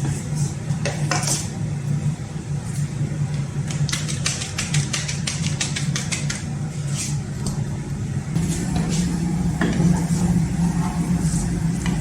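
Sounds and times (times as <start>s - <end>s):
low motor hum: 6.5s - 12.0s.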